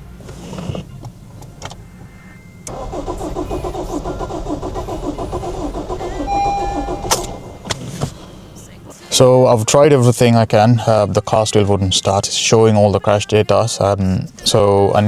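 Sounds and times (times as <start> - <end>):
starter motor cranking engine: 2.7 - 8.9.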